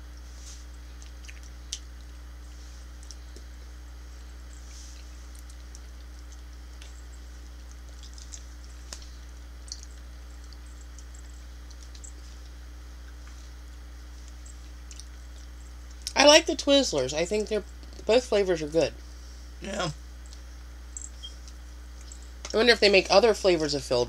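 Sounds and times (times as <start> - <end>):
soft chewing: 0.0 - 16.2, 17.6 - 18.0, 19.0 - 22.6
steady low hum: 0.0 - 24.0
wet mouth clicks: 1.0 - 2.1, 7.6 - 9.0, 9.6 - 12.2, 14.3 - 16.2.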